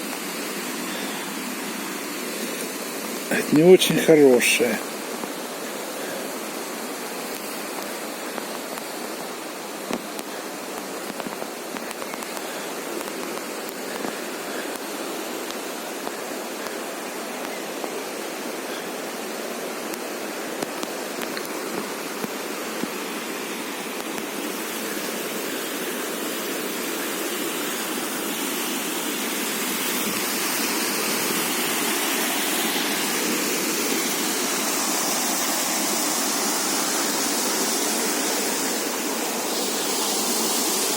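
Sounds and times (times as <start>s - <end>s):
rushing mountain stream: 0.0s - 40.9s
faint ticks: 9.9s - 16.8s.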